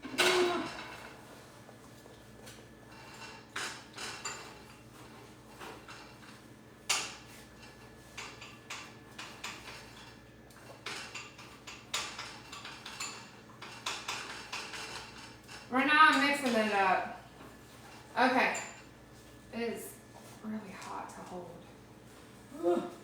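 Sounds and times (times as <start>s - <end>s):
utensil clinking against dish: 2.4s - 16.9s.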